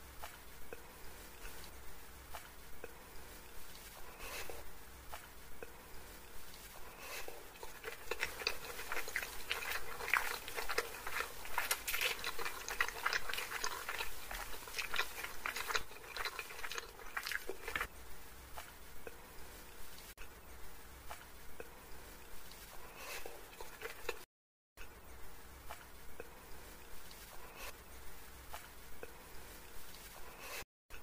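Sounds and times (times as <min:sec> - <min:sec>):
person chewing noodles: 0:06.8 - 0:17.9, 0:22.8 - 0:24.3.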